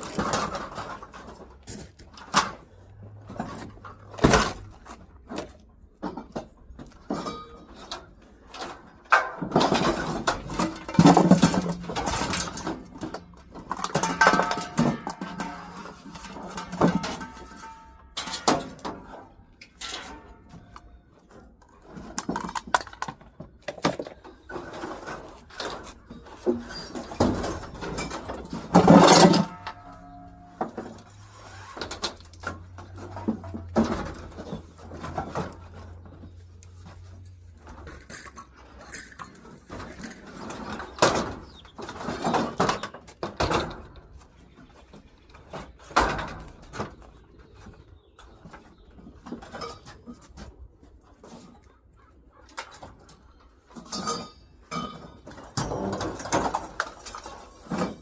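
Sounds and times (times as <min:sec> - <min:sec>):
knocks and clatter of objects: 0:00.0 - 0:58.0.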